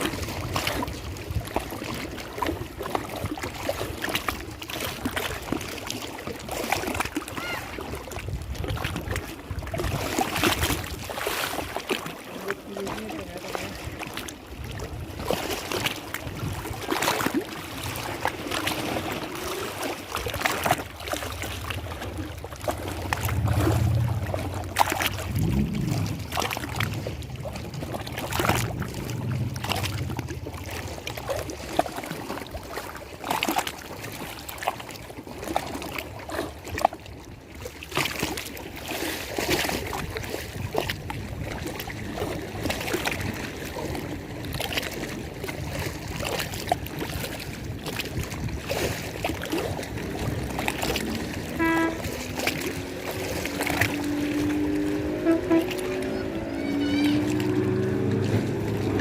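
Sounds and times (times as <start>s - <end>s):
lake water lapping and splashing: 0.0s - 59.0s
low rumble: 21.2s - 31.7s.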